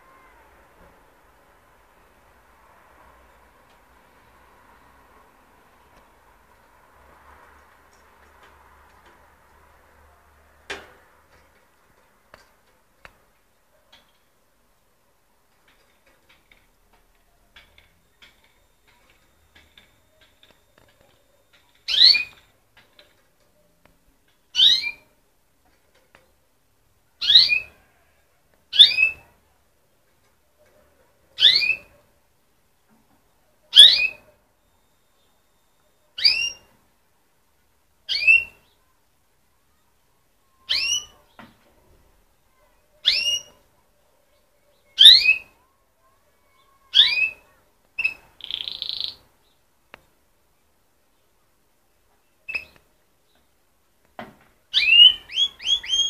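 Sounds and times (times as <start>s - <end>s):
canary chirping: 17.4s - 23.2s, 24.5s - 25.2s, 27.2s - 27.9s, 28.7s - 29.3s, 31.4s - 32.0s, 33.6s - 36.8s, 38.0s - 38.9s, 40.5s - 41.5s, 42.5s - 43.6s, 44.3s - 49.6s, 52.3s - 53.4s, 54.7s - 56.0s.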